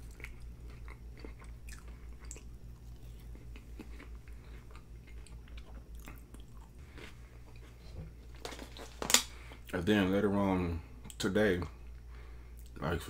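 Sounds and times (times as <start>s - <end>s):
mouth chewing with wet clicks: 0.0s - 6.8s
faint low hum: 0.0s - 13.0s.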